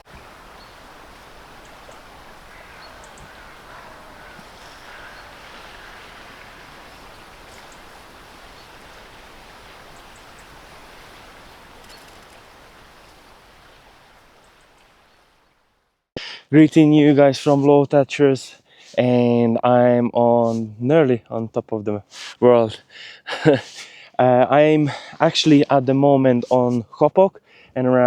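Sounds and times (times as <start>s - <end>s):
rush of wind or water: 0.0s - 15.6s.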